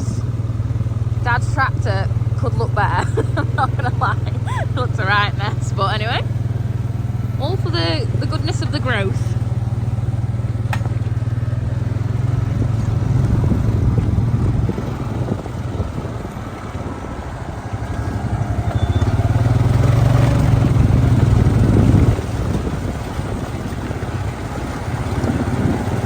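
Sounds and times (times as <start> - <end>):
tractor engine running under load: 0.0 - 26.0.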